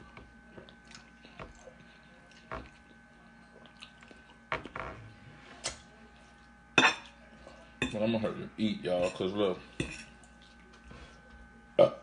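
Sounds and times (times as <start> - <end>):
person chewing food: 0.0 - 4.8.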